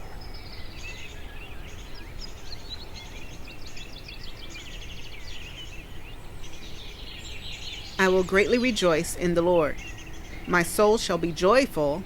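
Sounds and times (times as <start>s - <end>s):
songbirds chirping and trilling: 0.0s - 12.0s.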